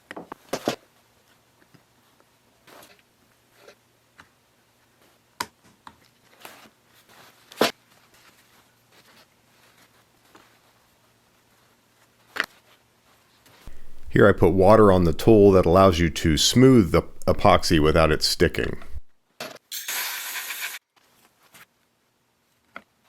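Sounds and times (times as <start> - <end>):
faint steady hum: 13.7 - 19.1.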